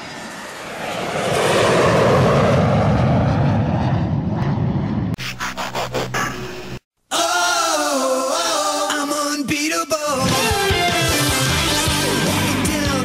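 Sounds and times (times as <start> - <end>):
loud rushing roar: 0.0 - 6.8
low hum: 0.0 - 6.8
stuttering pulsing sound: 2.0 - 6.8.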